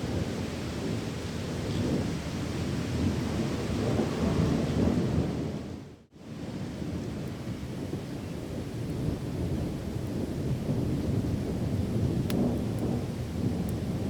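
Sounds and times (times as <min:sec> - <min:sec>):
thunder rumbling: 0:07.8 - 0:14.0.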